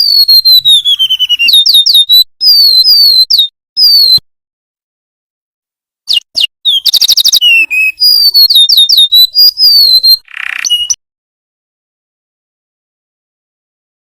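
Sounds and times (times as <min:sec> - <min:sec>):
bird singing high whistles: 0:00.0 - 0:04.2, 0:06.1 - 0:11.0.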